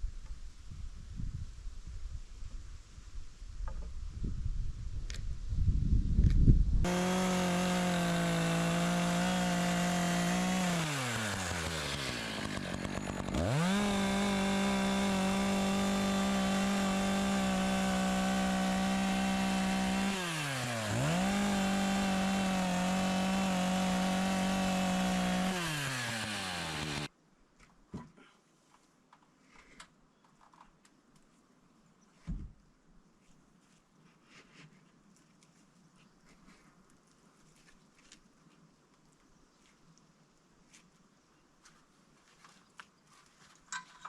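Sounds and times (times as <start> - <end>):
chainsaw cutting wood: 6.9 - 27.1.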